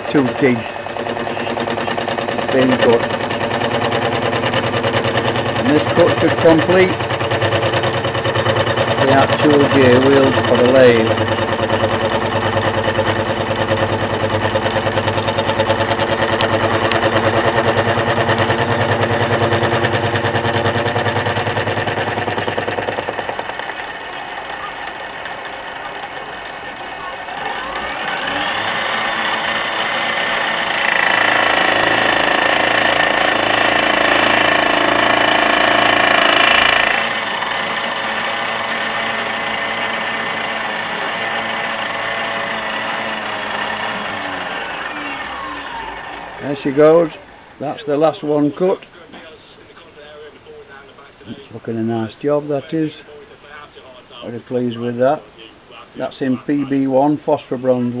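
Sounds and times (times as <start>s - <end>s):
milling machine cutting gear: 0.0s - 49.3s.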